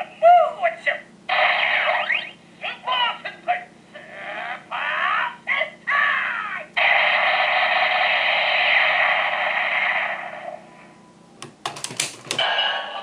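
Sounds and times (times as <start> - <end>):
electronic toy sound effect: 1.3 - 2.4.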